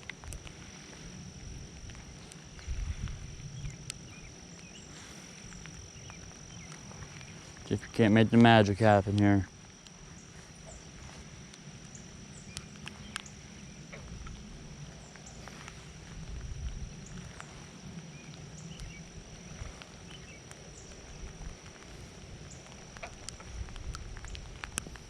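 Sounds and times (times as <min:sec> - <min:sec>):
low rumble: 0:00.0 - 0:08.3, 0:09.4 - 0:25.0
high-pitched insect drone: 0:00.0 - 0:25.0
raindrops tapping on camera: 0:11.3 - 0:25.0.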